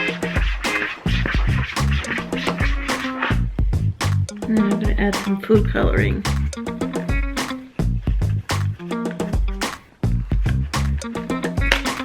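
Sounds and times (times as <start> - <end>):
record scratching: 0.0 - 3.5
music with steady beat and bass: 0.0 - 12.0.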